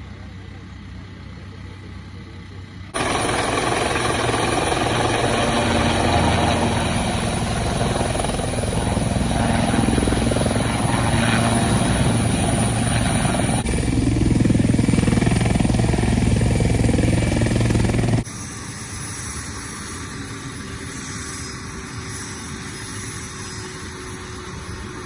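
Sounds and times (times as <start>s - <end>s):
helicopter turbine whine: 0.0s - 25.0s.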